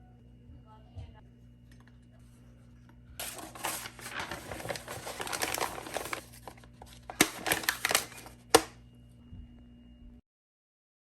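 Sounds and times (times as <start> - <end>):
crinkling handling noise: 3.2 - 8.8.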